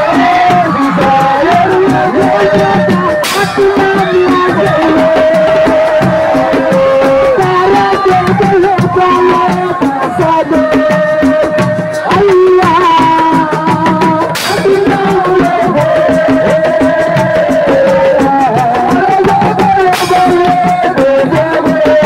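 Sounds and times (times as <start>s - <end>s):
fast hand drums: 0.0s - 22.0s.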